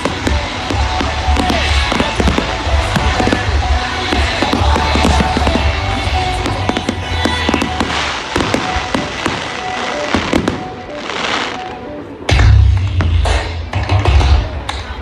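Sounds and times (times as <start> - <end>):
fireworks crackling and banging: 0.0 - 15.0
music from loudspeakers: 0.0 - 15.0.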